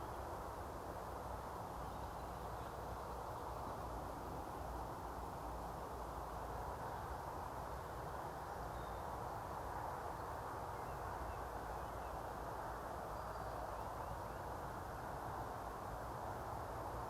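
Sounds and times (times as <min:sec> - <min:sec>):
faint bird chirps: 0:13.1 - 0:14.5.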